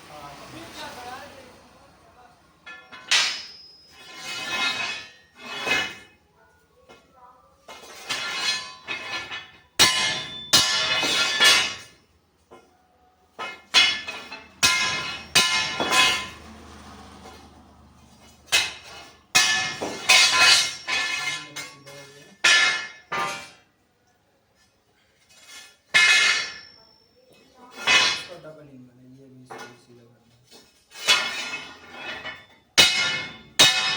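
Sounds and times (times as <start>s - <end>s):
hammer striking steel: 2.6s - 6.1s, 7.8s - 12.0s, 13.4s - 17.4s, 18.1s - 23.6s, 25.9s - 26.8s, 31.0s - 33.9s.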